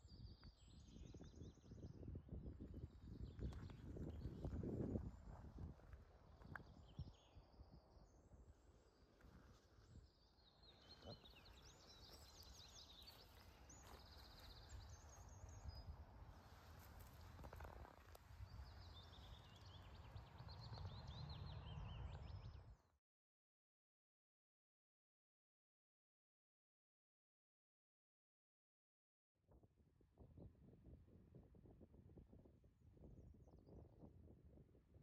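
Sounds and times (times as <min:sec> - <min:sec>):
small birds chirping and trilling: 0:06.3 - 0:22.8.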